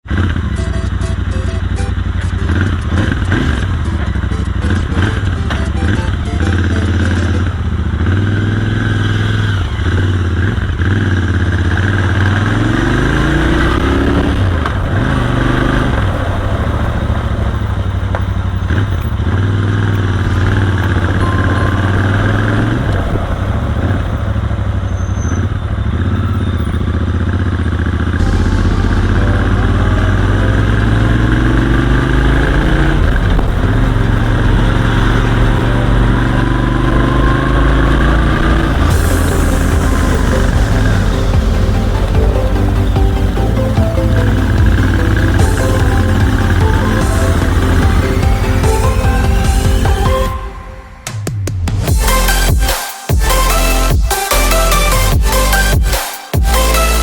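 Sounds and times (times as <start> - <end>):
wind and road noise: 0.0 - 52.1
motorcycle engine running: 0.0 - 57.0.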